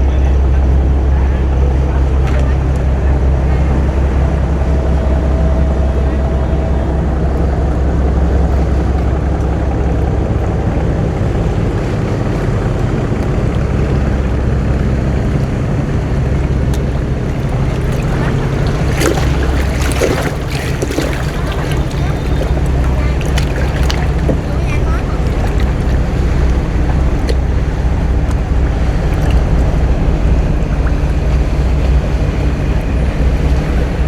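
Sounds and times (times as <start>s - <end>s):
boat engine droning: 0.0s - 34.0s
water and wind noise: 0.0s - 34.0s.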